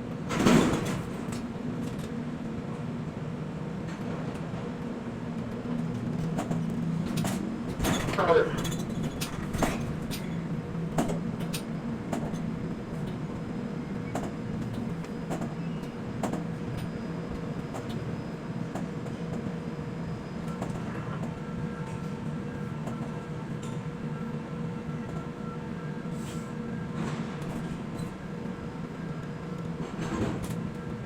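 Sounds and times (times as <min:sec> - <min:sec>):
crane machinery humming: 0:05.0 - 0:31.0
faint machine whine: 0:07.6 - 0:31.0.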